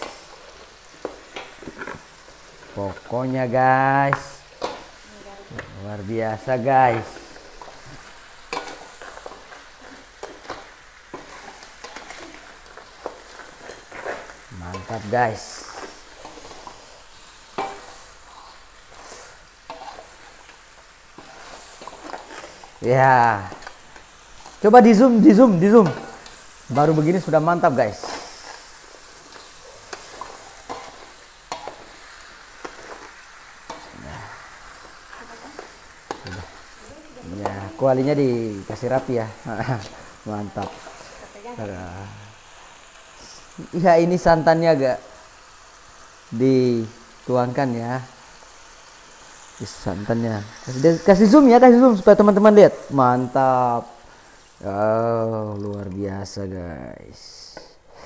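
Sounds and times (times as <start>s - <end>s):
crabs sizzling in oil: 0.0s - 58.0s
metal spatula scraping a pan: 6.4s - 41.4s
metal ladle scraping a wok: 15.6s - 20.5s, 21.1s - 22.8s, 27.9s - 38.0s.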